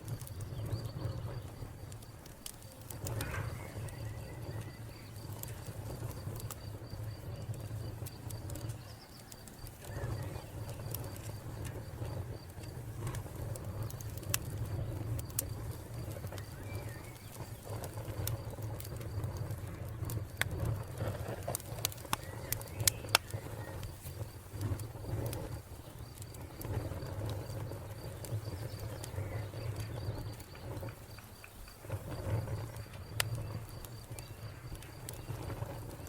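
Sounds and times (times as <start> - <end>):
wood fire crackling and popping: 0.0 - 36.0
cricket chirping: 3.0 - 14.0, 21.8 - 36.0.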